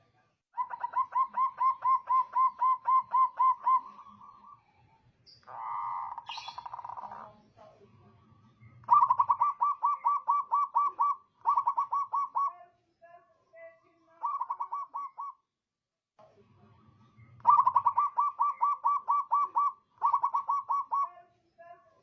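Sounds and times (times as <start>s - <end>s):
dove cooing: 0.6s - 4.6s, 5.5s - 7.4s, 8.8s - 12.5s, 14.2s - 15.4s, 17.4s - 21.2s.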